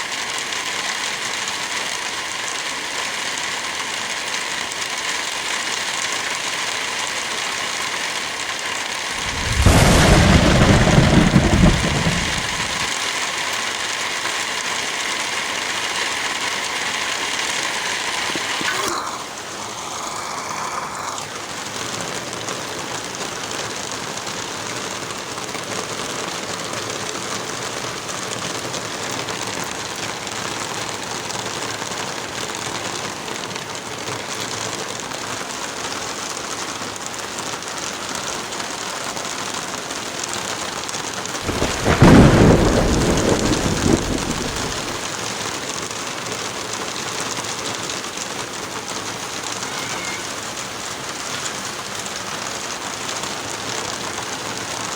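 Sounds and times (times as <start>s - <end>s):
heavy rain falling: 0.0s - 54.9s
thunder crack and rumble: 9.2s - 13.0s, 41.4s - 45.1s.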